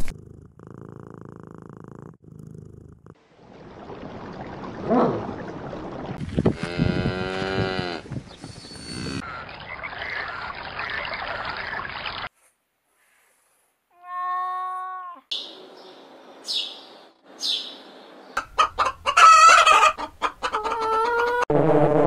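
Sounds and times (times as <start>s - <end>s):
cat purring: 0.0s - 3.2s
cows mooing: 6.4s - 9.2s.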